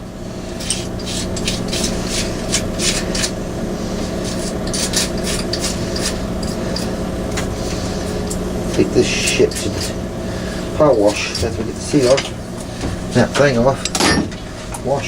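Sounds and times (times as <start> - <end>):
steady low hum: 0.0 - 15.0
rubbing or scraping strokes: 0.3 - 8.5.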